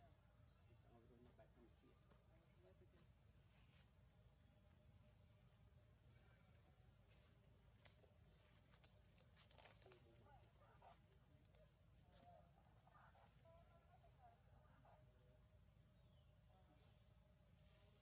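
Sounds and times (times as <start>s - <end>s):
faint wavering animal calls: 9.6s - 18.0s.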